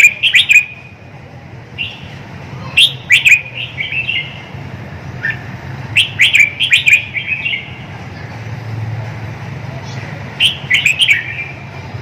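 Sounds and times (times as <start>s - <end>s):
bulbul singing: 0.0s - 1.0s, 1.7s - 7.9s, 9.9s - 11.8s.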